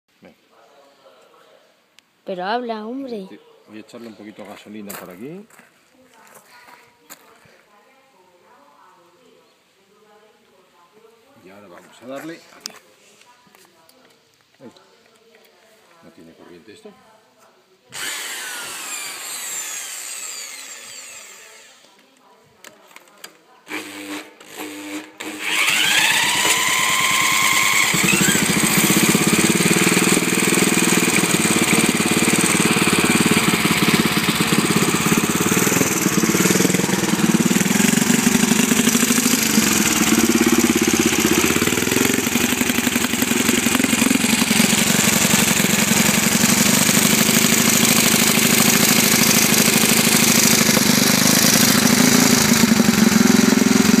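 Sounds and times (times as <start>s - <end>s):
motorcycle engine starting and running: 24.6s - 54.0s.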